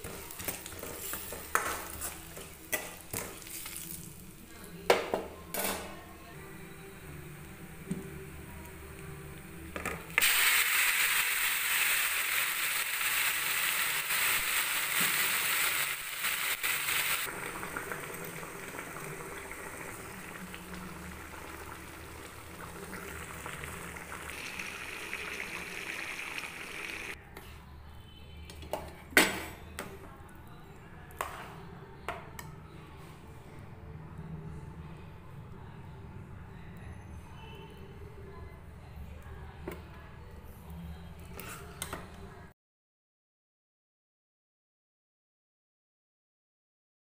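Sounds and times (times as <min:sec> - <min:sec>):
ghee sizzling: 0:08.3 - 0:27.2.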